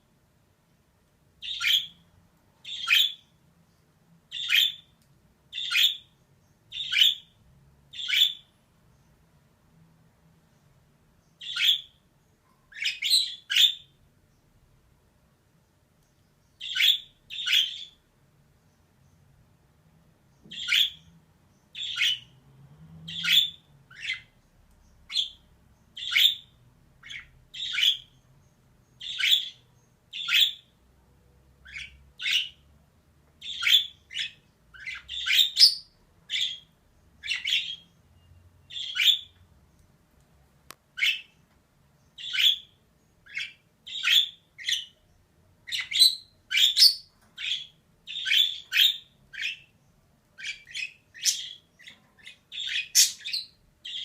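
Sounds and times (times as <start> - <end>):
budgerigar harsh chirps: 45.7 - 49.7, 50.4 - 54.0.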